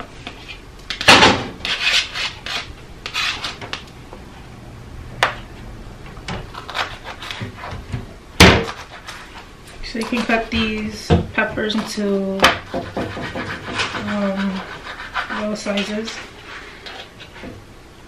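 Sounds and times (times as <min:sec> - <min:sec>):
knife scraping on cutting board: 0:01.6 - 0:03.8, 0:06.5 - 0:07.8, 0:08.6 - 0:10.6, 0:11.7 - 0:17.5.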